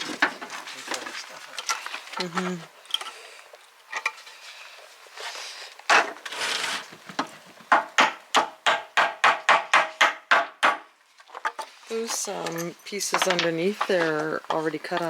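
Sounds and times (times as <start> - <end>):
wood scraping: 3.9 - 7.9
hammer striking wood: 7.7 - 10.9.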